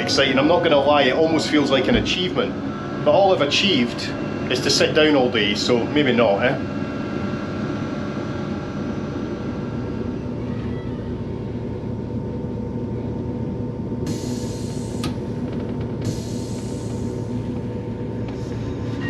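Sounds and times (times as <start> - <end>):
train engine rumble: 0.0 - 19.0
click: 15.0 - 16.0.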